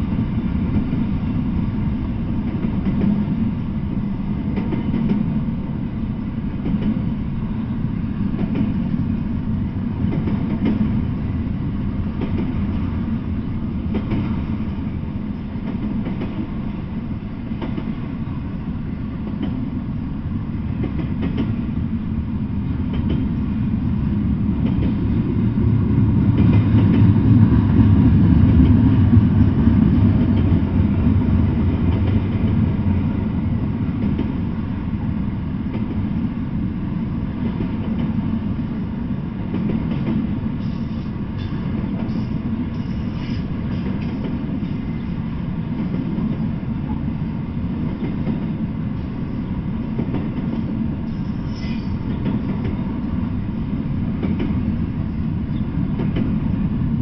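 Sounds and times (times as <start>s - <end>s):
freight train wheels rumbling: 0.0s - 57.0s
faint rail clicks: 15.4s - 16.4s, 17.6s - 18.0s, 20.8s - 21.6s, 24.6s - 25.0s, 39.5s - 45.2s.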